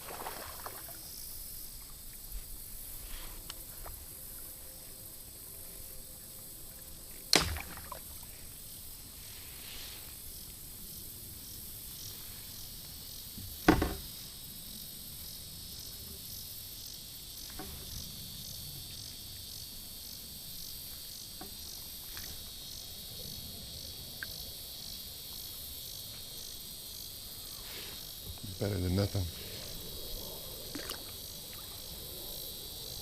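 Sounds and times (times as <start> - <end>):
insects chirring: 0.0 - 33.0
sharp knock: 13.6 - 14.0.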